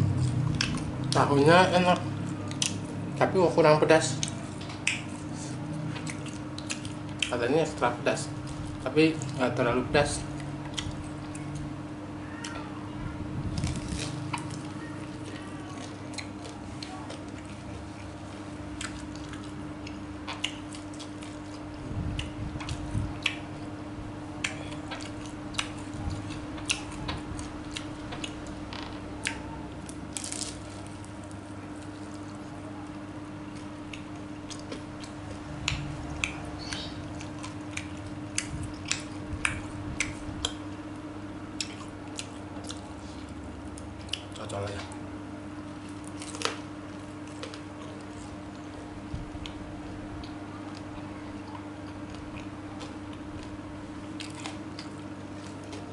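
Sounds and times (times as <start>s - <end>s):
low hum: 0.0s - 3.3s
wet chewing mouth sounds: 0.1s - 1.3s, 4.0s - 7.4s, 10.2s - 11.8s, 13.5s - 23.7s, 24.4s - 29.5s, 30.2s - 40.8s, 41.5s - 45.0s, 45.8s - 55.9s
mouth clicks and smacks: 4.2s - 5.2s.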